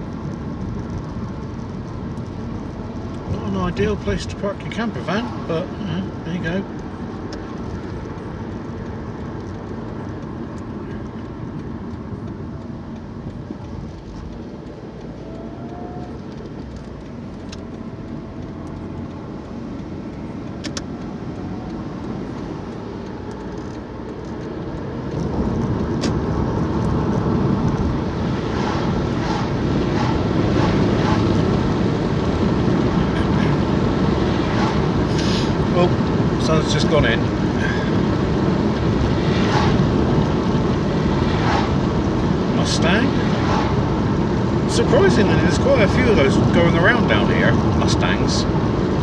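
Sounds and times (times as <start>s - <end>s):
car road and engine noise: 0.0s - 49.0s.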